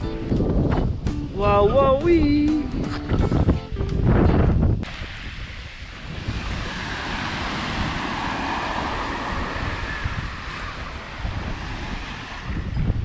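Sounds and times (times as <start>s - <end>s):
wind buffeting microphone: 0.0s - 13.0s
sea waves washing up beach: 4.8s - 13.0s.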